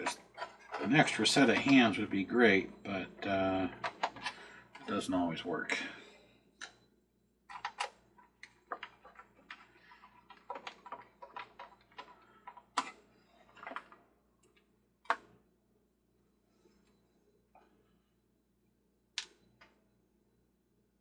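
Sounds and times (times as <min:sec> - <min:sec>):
plastic and metal parts clicking: 0:03.7 - 0:05.0, 0:07.5 - 0:15.3.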